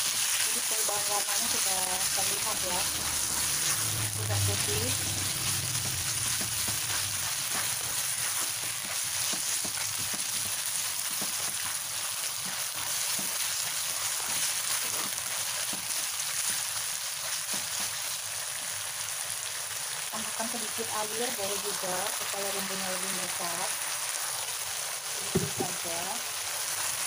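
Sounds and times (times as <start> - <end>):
spatula scraping a wok: 0.0 - 18.1
small crackles: 0.0 - 18.5
chicken sizzling in a wok: 0.0 - 27.0.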